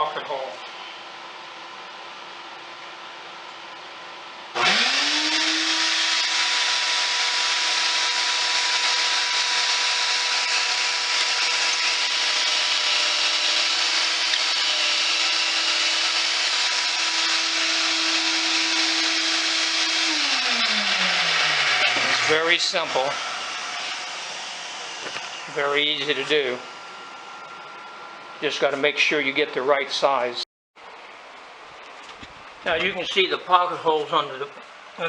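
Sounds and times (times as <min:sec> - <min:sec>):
vacuum whine with rushing air: 0:20.2 - 0:29.4.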